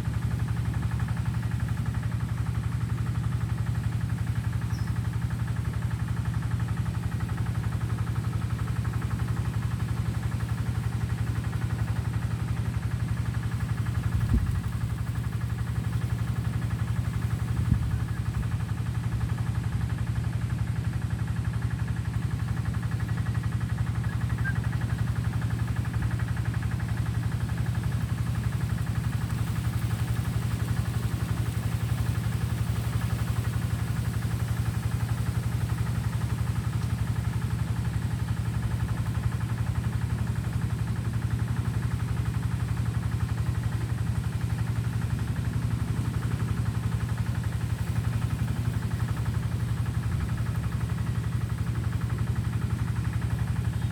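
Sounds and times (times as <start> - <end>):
engine idling: 0.0 - 53.9.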